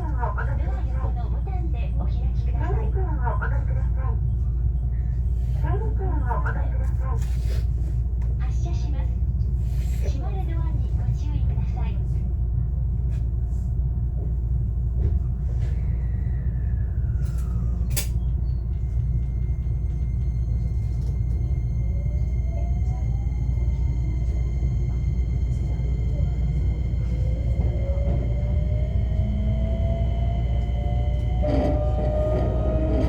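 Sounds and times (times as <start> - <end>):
train cabin low rumble: 0.0 - 33.0
electric train motor whine rising: 20.3 - 33.0.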